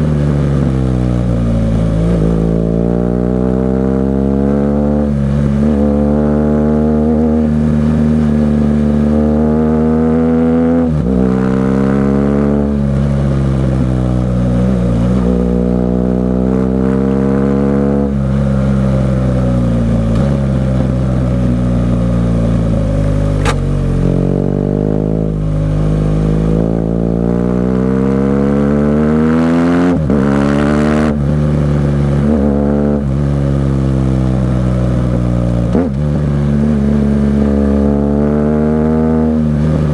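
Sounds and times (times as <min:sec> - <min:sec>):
motorcycle engine revving: 0:00.0 - 0:39.9
sharp click: 0:23.4 - 0:23.7.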